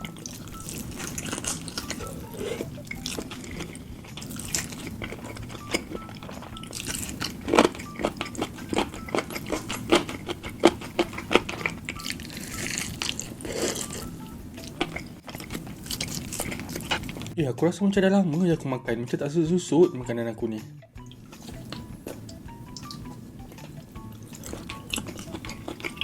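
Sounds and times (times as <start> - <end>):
chewing crunchy food: 0.0 - 17.4, 21.0 - 26.0.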